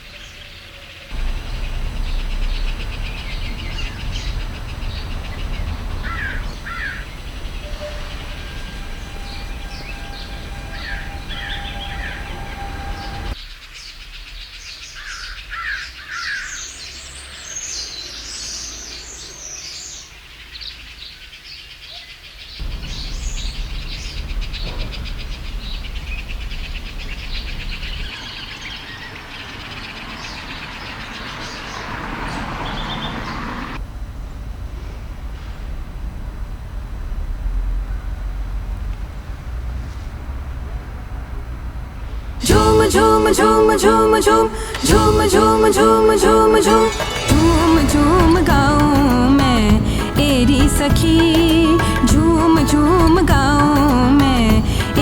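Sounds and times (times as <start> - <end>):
low outdoor rumble: 1.2 - 13.4, 22.6 - 28.1, 33.8 - 55.0
small birds chirping: 1.2 - 13.4, 22.4 - 33.4.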